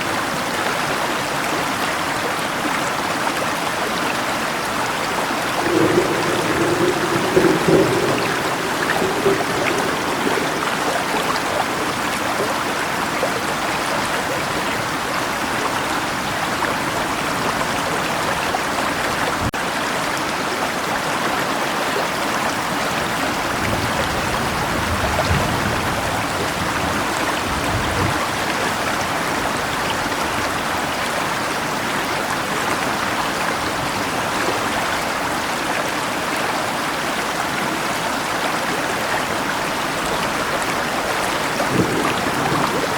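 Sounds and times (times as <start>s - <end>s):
river water rushing: 0.0s - 27.5s, 28.2s - 42.9s
faint low rumble: 5.6s - 12.0s.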